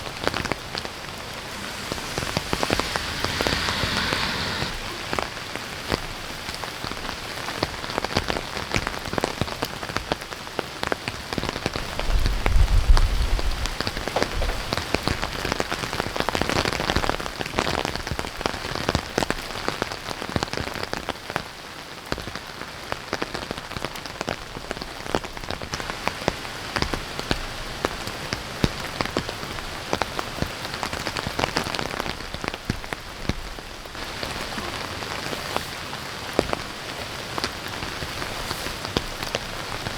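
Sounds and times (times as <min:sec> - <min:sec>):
heavy rain falling: 0:00.0 - 0:17.4, 0:18.7 - 0:39.9
low rumble: 0:00.1 - 0:05.8
raindrops pattering on a surface: 0:06.3 - 0:39.9.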